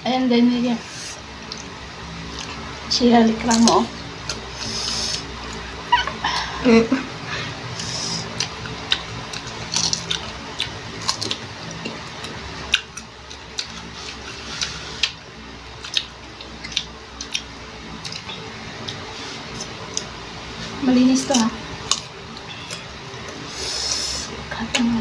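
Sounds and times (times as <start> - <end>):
chewing and crunching mango: 1.4 - 5.7, 7.7 - 20.8, 21.7 - 23.5.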